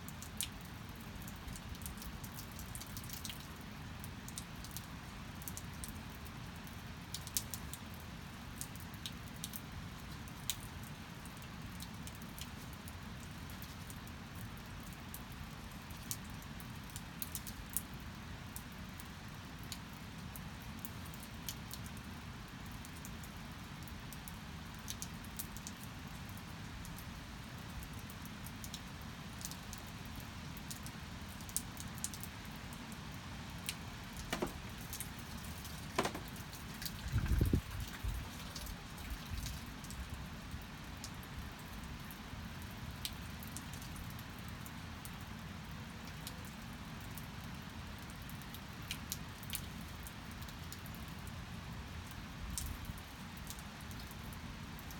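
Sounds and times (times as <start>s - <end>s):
steady rain: 0.0s - 54.9s
drips and light taps: 0.2s - 3.5s, 33.6s - 41.8s.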